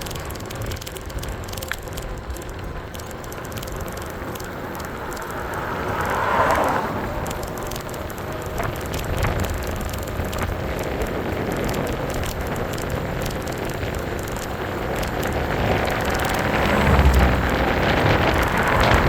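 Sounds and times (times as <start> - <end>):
car passing: 2.8 - 10.4, 14.3 - 19.0
wind on microphone: 3.4 - 19.0.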